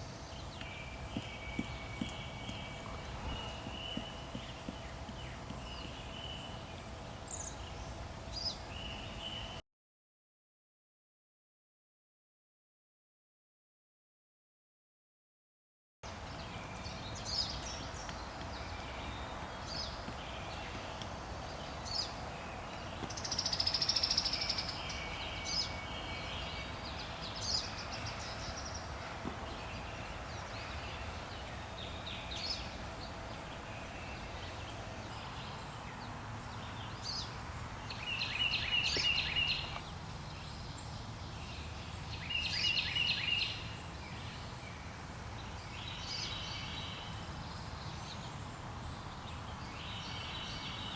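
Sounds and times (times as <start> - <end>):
low background rumble: 0.0 - 9.5
birds chirping and singing: 0.0 - 9.6, 16.2 - 50.9.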